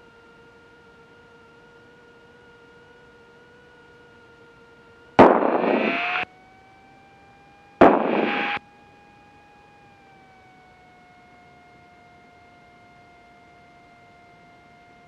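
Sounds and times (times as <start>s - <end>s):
radio static bursts: 5.2s - 6.2s, 7.8s - 8.6s
airplane engine drone: 5.2s - 8.6s.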